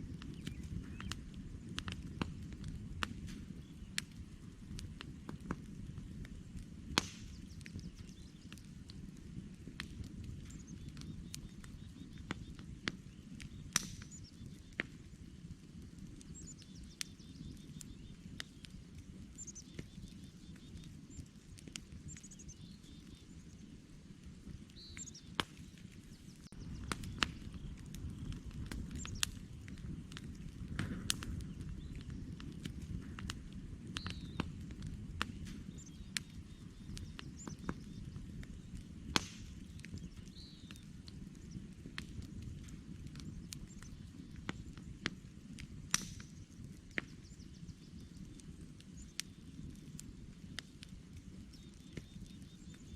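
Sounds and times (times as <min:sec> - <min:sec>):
campfire crackling and popping: 0:00.0 - 0:52.9
faint bird chirps: 0:16.2 - 0:21.3, 0:22.0 - 0:23.8, 0:24.4 - 0:29.4, 0:34.0 - 0:34.4, 0:39.6 - 0:41.7, 0:51.4 - 0:52.9.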